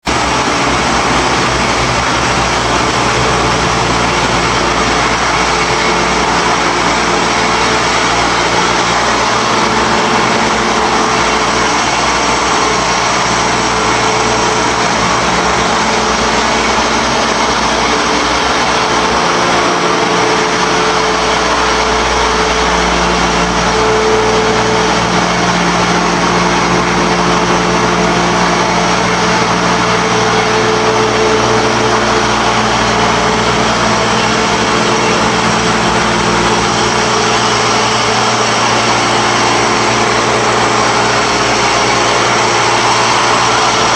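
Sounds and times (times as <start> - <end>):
loud machine noise with motor hum: 0.0 - 43.9.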